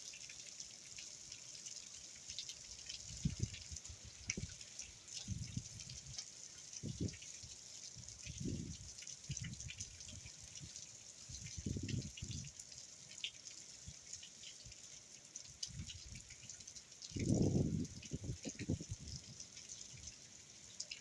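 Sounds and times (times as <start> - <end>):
drops dripping and pattering: 2.2 - 21.0
wind gusts buffeting microphone: 11.6 - 12.4, 17.2 - 19.2.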